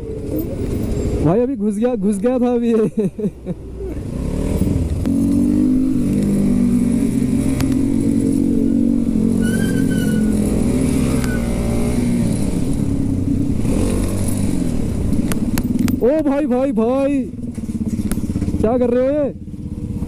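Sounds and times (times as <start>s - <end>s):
motorcycle engine running: 3.0s - 20.0s.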